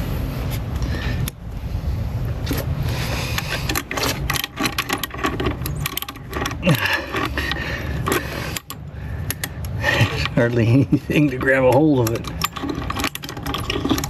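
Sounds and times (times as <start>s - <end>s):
hand tool scraping a bolt: 3.2s - 14.0s.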